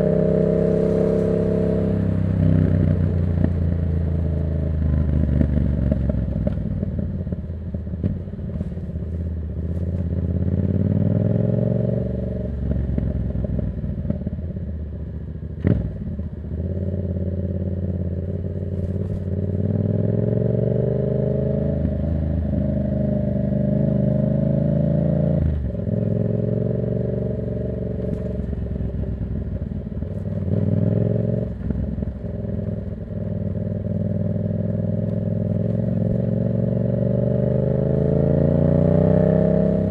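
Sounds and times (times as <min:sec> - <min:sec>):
motorcycle engine revving: 0:00.0 - 0:07.0, 0:15.6 - 0:39.9.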